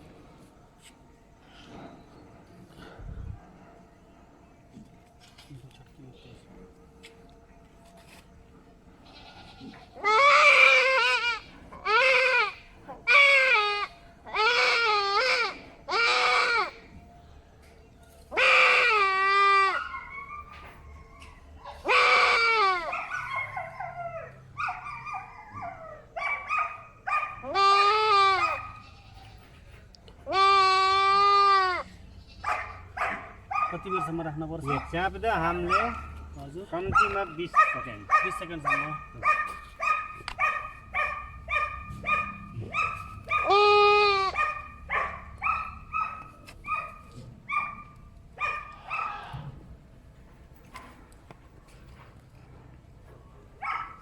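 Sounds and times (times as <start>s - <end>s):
goat bleating in distress: 9.0s - 16.8s, 18.4s - 19.8s, 21.8s - 22.9s, 27.4s - 29.4s, 30.2s - 32.6s, 43.3s - 44.4s.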